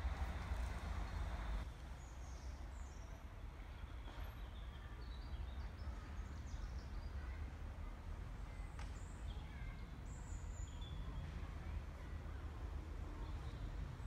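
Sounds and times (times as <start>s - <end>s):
low background rumble: 0.0s - 1.6s.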